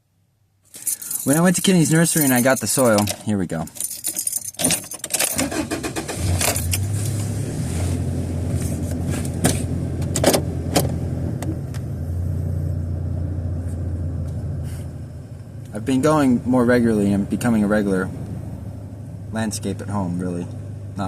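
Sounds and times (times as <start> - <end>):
keys jangling: 0.8 - 5.5
truck engine starting and running: 4.6 - 21.0.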